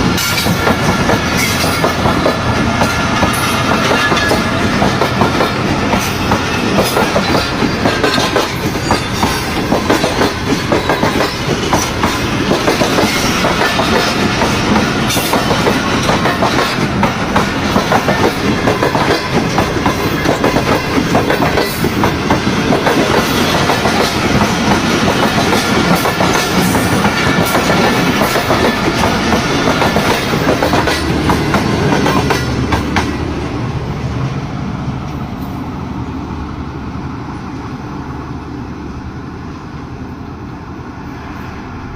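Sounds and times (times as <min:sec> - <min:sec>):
train wheels clacking on rails: 0:00.0 - 0:33.5.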